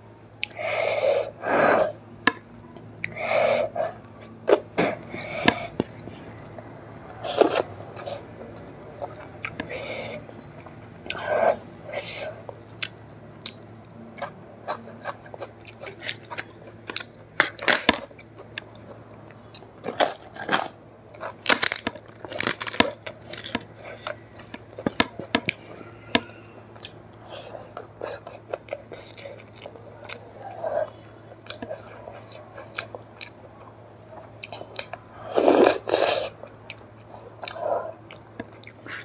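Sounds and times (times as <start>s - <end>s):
steady low hum: 0.0s - 39.0s
chewing with mouth clicks: 2.7s - 3.2s, 3.8s - 39.0s.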